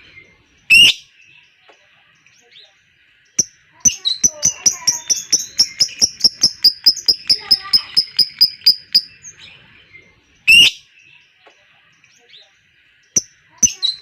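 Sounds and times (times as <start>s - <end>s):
faint bird chatter: 0.0s - 14.0s
lovebird chattering trill: 3.4s - 9.3s, 13.2s - 14.0s.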